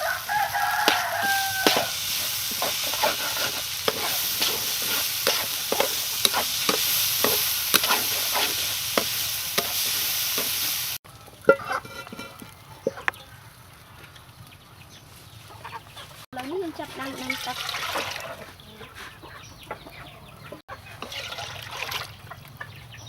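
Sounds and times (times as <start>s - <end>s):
spatula scraping and knocking pan: 0.0s - 13.2s, 20.5s - 22.0s
rice sizzling in a pan: 0.0s - 15.4s, 20.9s - 21.8s.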